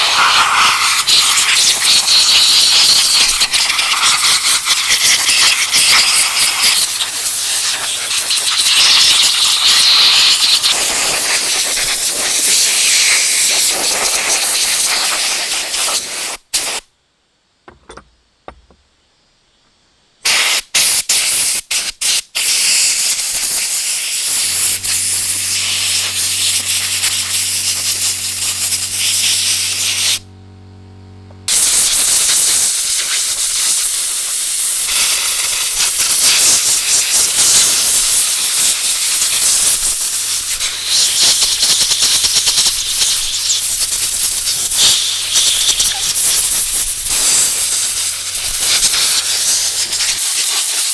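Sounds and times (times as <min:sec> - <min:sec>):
loud spraying hiss: 0:00.0 - 0:16.9, 0:20.3 - 0:30.2, 0:31.5 - 0:50.9
low steady hum: 0:24.2 - 0:31.6.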